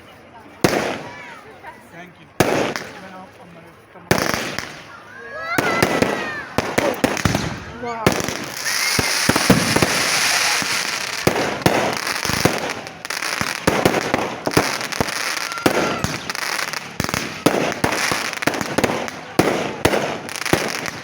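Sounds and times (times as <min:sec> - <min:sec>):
fireworks bangs: 0:00.0 - 0:21.0
fireworks crackling: 0:00.0 - 0:21.0
rising whistles of shells: 0:08.4 - 0:11.2, 0:15.0 - 0:16.7.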